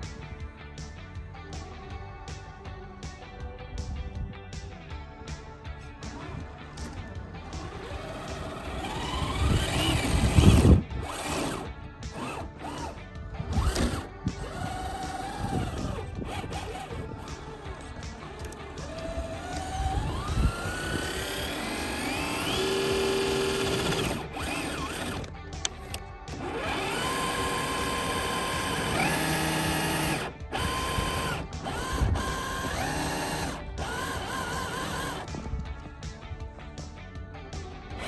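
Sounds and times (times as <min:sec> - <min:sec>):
electric motor and gears whining: 0:05.8 - 0:36.0.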